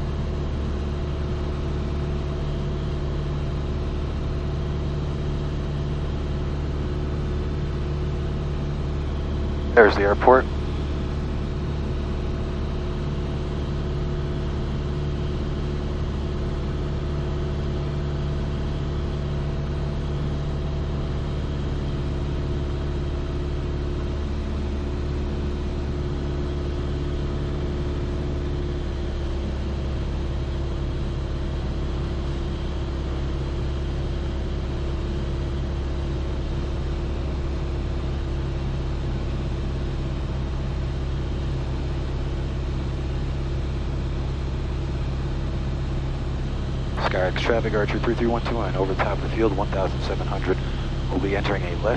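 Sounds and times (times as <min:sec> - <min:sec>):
airplane engine droning: 0:06.6 - 0:26.5, 0:45.4 - 0:51.9.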